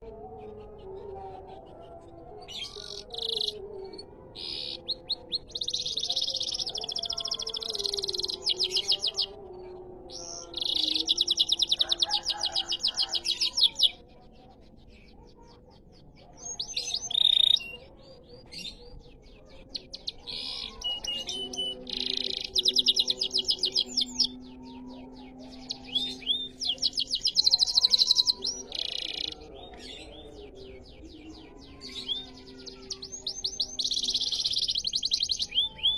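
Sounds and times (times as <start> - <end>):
canary trilling: 2.5 - 9.4, 10.1 - 14.0, 16.4 - 17.9, 19.6 - 30.6, 31.2 - 35.9.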